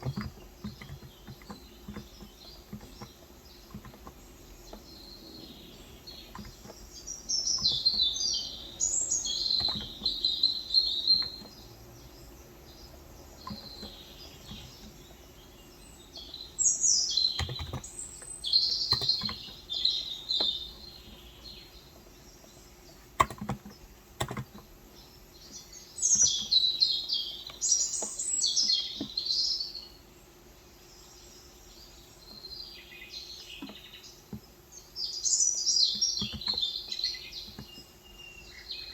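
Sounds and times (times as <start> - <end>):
birds chirping: 0.0 - 38.9
keyboard key clicks: 9.4 - 10.2, 17.3 - 18.0, 18.8 - 19.6, 23.2 - 24.6.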